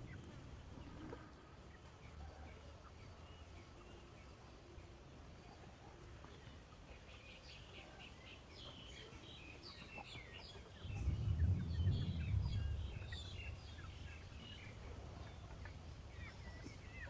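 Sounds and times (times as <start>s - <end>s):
birds chirping: 0.0s - 17.0s
low rumble: 10.8s - 16.3s.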